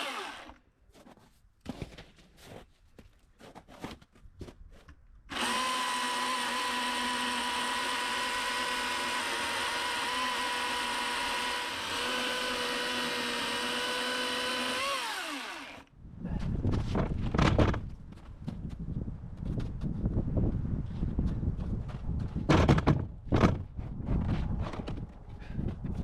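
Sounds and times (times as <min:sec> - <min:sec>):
electric chainsaw cutting log: 0:00.0 - 0:00.6, 0:05.3 - 0:15.9.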